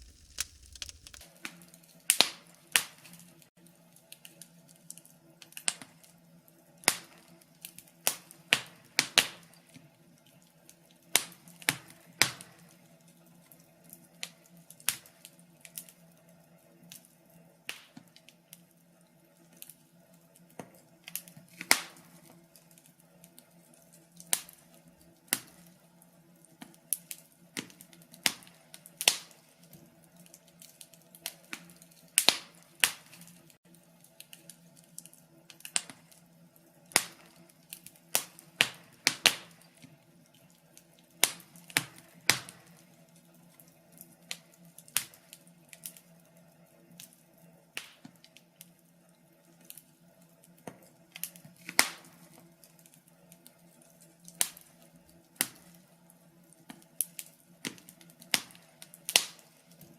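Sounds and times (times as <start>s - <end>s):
wood fire crackling and popping: 0.0s - 1.3s, 23.7s - 25.7s, 26.6s - 46.3s, 47.0s - 48.7s, 50.5s - 55.9s, 56.5s - 59.9s.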